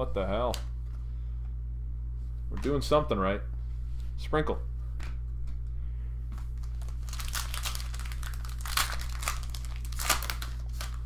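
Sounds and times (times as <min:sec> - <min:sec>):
low electrical hum: 0:00.0 - 0:11.0
foil wrapper crinkling and tearing: 0:06.6 - 0:11.0.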